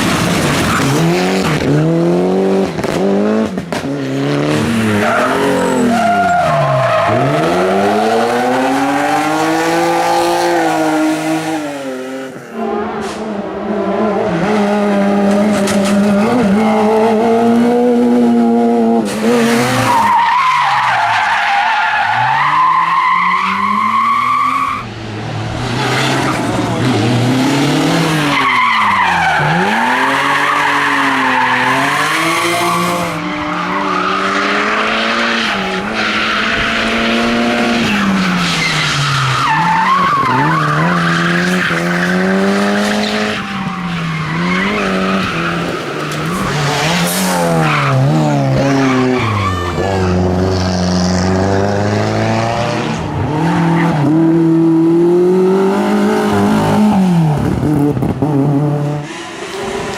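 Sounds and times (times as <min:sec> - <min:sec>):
tyre squeal and skidding: 0:04.6 - 0:08.0, 0:19.4 - 0:24.9, 0:28.1 - 0:50.6
race car engine revving: 0:21.6 - 0:59.9.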